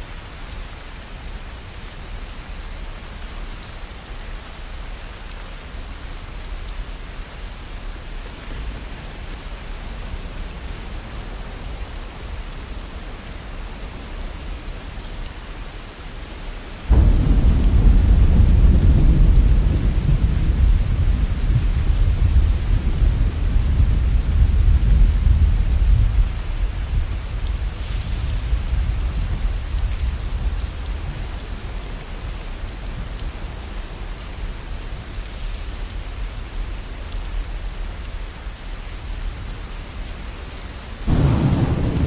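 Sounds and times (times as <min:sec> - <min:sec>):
heavy rain hiss: 0:00.0 - 0:42.0
thunder rumbling: 0:16.9 - 0:31.8, 0:41.1 - 0:42.0.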